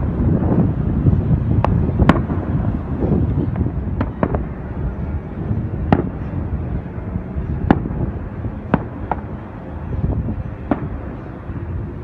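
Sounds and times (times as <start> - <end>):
low rumble: 0.0 - 12.0
faint fireworks pops: 1.6 - 4.5, 5.8 - 6.3, 7.6 - 8.0, 8.6 - 9.4, 10.6 - 11.1
fireworks bangs: 1.6 - 4.8, 5.7 - 6.6, 7.4 - 11.7.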